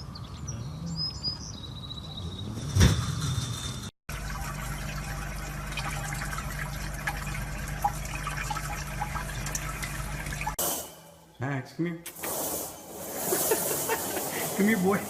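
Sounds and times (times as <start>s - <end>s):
water trickling: 4.1s - 10.6s.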